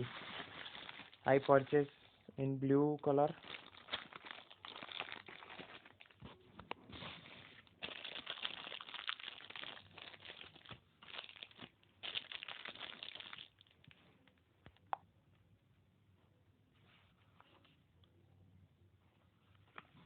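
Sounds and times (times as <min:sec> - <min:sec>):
packaging crinkling and rustling: 0:00.0 - 0:02.0, 0:03.0 - 0:13.9.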